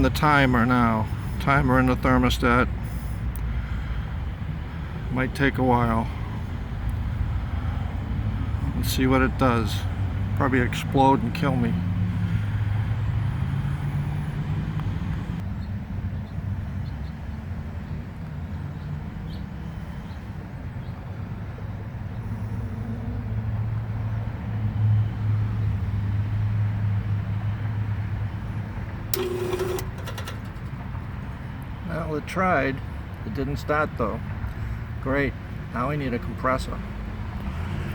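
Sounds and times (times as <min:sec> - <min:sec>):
compressor humming: 0:29.1 - 0:30.9.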